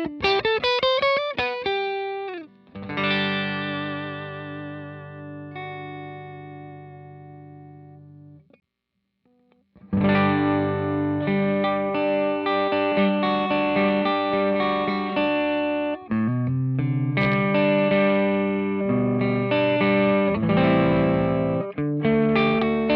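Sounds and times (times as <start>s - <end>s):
electric guitar chords and notes: 0.0s - 8.5s, 9.8s - 22.9s.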